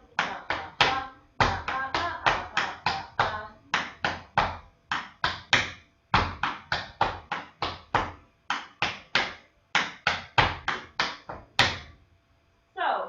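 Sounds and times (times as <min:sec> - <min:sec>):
tap shoes on hard floor: 0:00.2 - 0:12.0.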